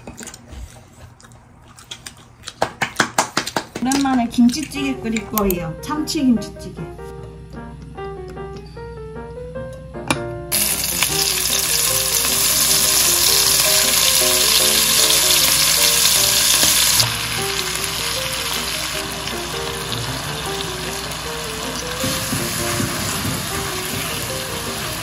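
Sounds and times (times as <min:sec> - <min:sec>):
food sizzling in hot oil: 0:10.5 - 0:25.0.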